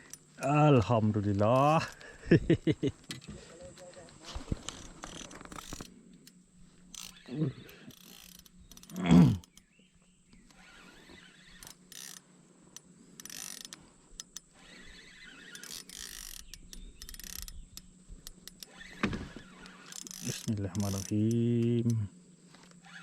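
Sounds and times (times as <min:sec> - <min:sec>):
fishing reel ratchet clicking: 0:04.6 - 0:05.9, 0:06.9 - 0:09.6, 0:10.5 - 0:18.9, 0:19.5 - 0:22.0.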